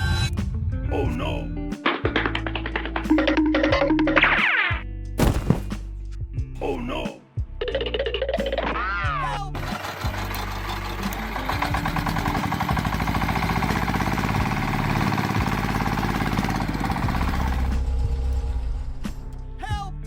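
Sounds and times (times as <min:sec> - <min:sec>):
small engine chugging: 0:09.6 - 0:18.1.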